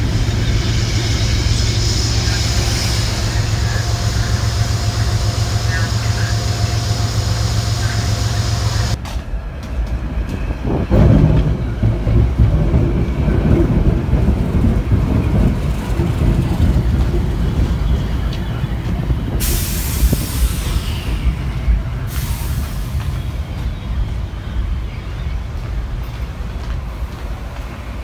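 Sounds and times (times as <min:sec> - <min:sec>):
train wheels rumbling: 0:00.0 - 0:28.0
air brake hiss: 0:19.4 - 0:21.4, 0:22.1 - 0:23.1.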